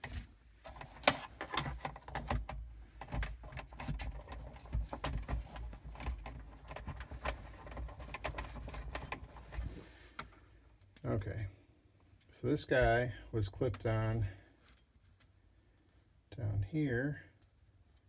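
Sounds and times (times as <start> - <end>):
parts clicking and rattling: 0.0 - 11.0.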